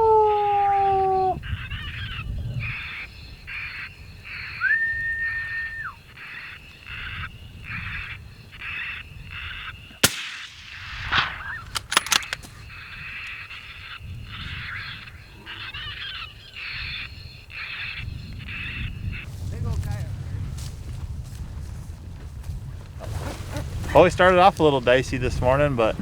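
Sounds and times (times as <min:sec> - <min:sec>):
electronic animal call: 0:00.0 - 0:03.1
rapid clicks: 0:10.0 - 0:12.5
sharp crack: 0:10.0 - 0:12.6.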